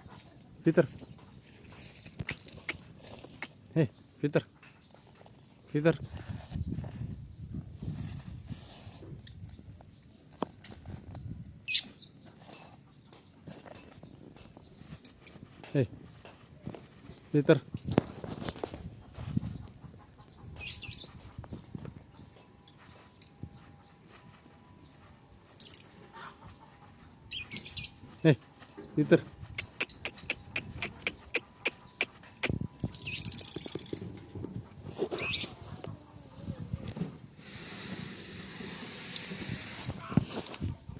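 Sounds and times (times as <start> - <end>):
lovebirds chirping and screeching: 11.6 - 15.4, 17.1 - 23.7, 25.4 - 28.2, 28.8 - 37.1
lovebird shrill chirp: 27.3 - 28.0, 32.8 - 34.0.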